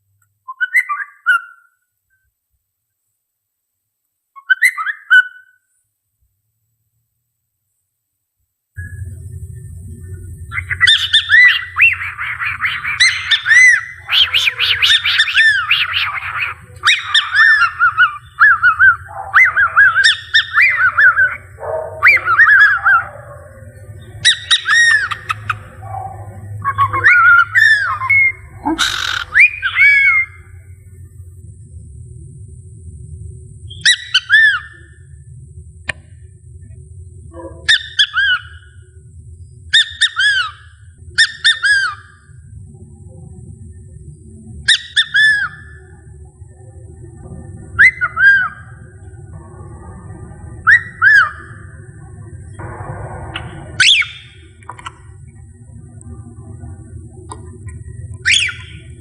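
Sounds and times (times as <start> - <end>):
cockatiel whistling: 10.0 - 30.6, 33.7 - 35.0, 37.6 - 38.8, 39.7 - 42.2, 44.6 - 45.9, 47.8 - 48.8, 50.6 - 51.6, 53.4 - 55.0, 58.2 - 59.0.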